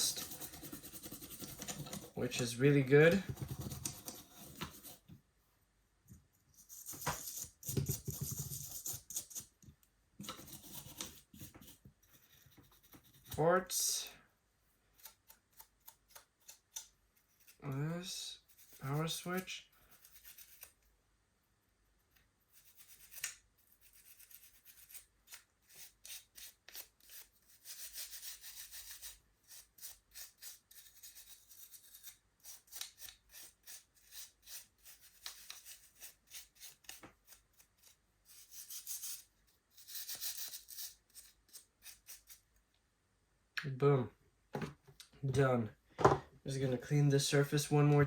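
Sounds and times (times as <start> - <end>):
scratchy scrubbing on plastic: 0.0 - 2.7.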